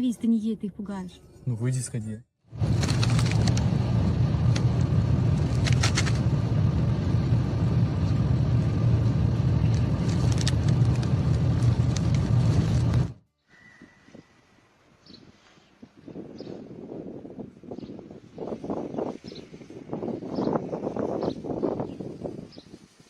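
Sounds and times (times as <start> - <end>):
car engine and road noise: 2.4 - 13.3, 16.9 - 23.0.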